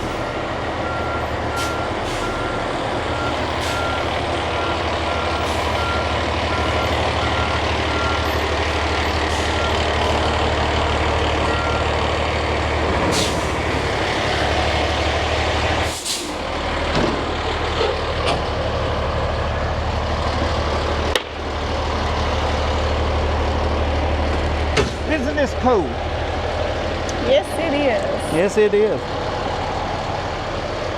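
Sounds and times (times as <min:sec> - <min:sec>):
truck engine running: 0:00.0 - 0:30.9.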